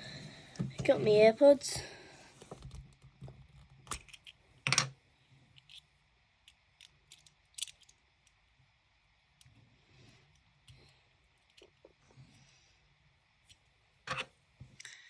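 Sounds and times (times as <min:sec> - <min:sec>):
small objects clicking and tapping: 0:06.4 - 0:08.4.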